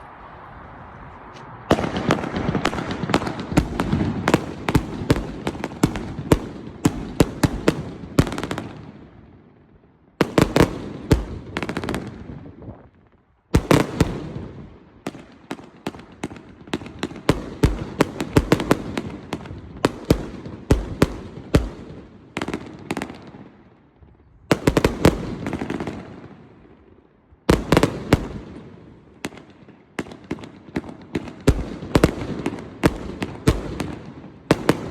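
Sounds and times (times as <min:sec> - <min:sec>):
fireworks popping and crackling: 0:01.2 - 0:09.0, 0:27.5 - 0:34.9.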